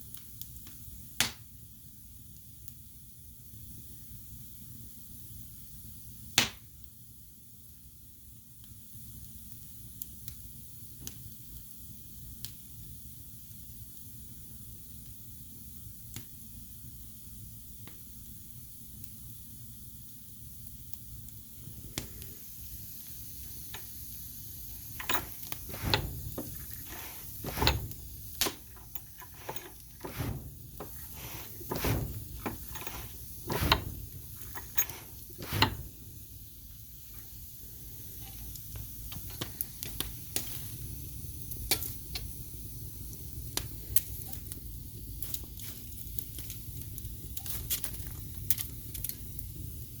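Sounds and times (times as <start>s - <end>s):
wood fire crackling and popping: 0.0s - 1.5s, 19.9s - 50.0s.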